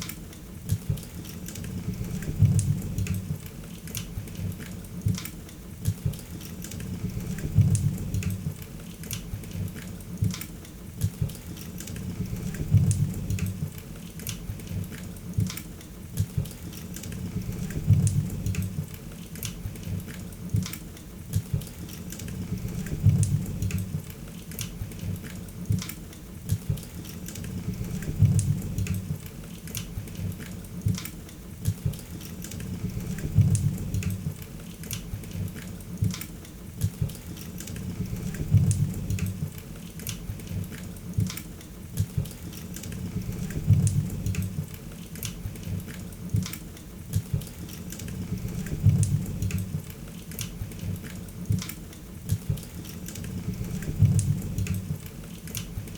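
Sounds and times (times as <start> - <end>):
low rumble of flames: 1.6 - 3.5, 6.8 - 8.6, 12.0 - 13.8, 17.1 - 19.0, 22.3 - 24.1, 27.4 - 29.3, 32.6 - 34.4, 37.8 - 39.6, 42.9 - 44.8, 48.1 - 49.9, 53.2 - 55.0.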